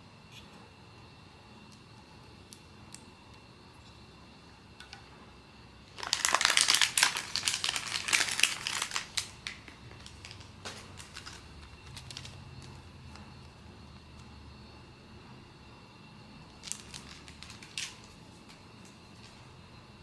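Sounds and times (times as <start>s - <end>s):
small crackles and clicks: 1.7s - 4.0s, 5.9s - 14.3s, 16.5s - 19.5s
plastic packaging crinkling: 5.9s - 13.6s, 16.5s - 19.6s.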